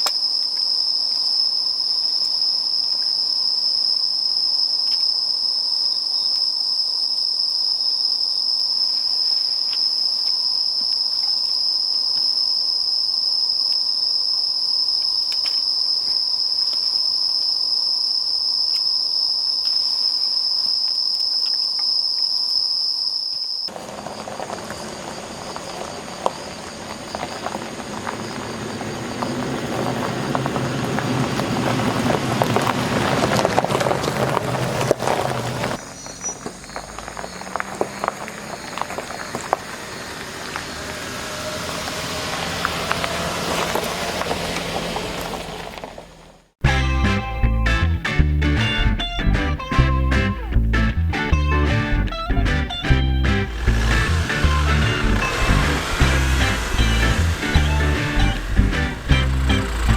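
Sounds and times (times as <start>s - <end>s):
insects singing: 0.0s - 33.2s, 33.8s - 45.1s, 47.0s - 59.9s
broad rushing noise: 39.8s - 46.0s, 52.8s - 59.9s.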